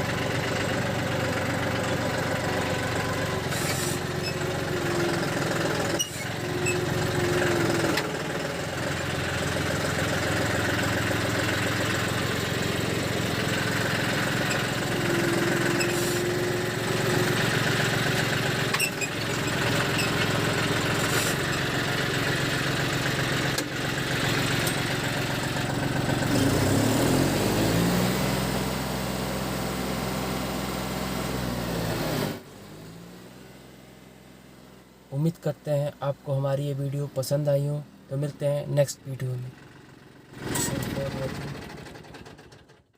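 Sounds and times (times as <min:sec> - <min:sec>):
diesel tractor engine running: 0:00.0 - 0:42.9.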